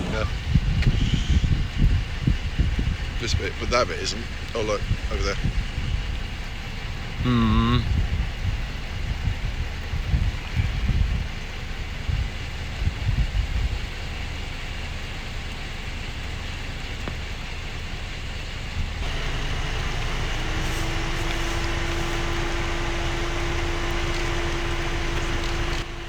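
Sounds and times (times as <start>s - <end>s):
wind buffeting microphone: 0.0s - 14.2s
low steady hum: 0.0s - 26.0s.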